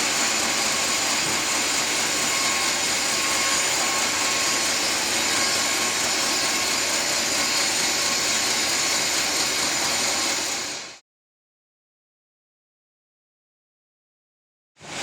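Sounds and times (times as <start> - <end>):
sawmill machinery whining: 0.0 - 11.0, 14.8 - 15.0.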